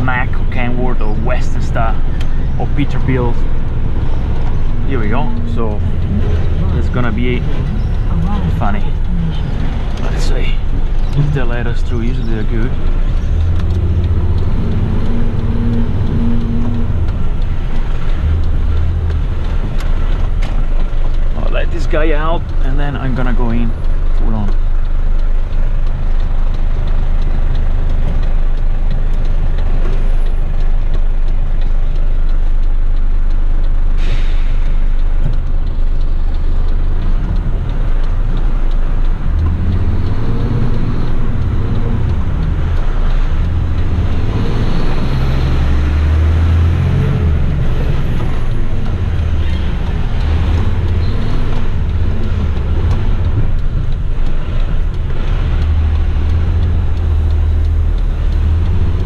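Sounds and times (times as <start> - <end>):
truck diesel engine: 0.0 - 59.0
air brake hiss: 34.0 - 34.9.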